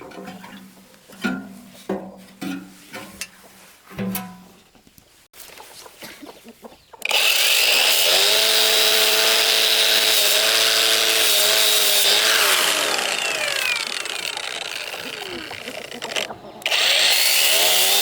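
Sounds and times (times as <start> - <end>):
electric power tool whining: 7.0 - 18.0.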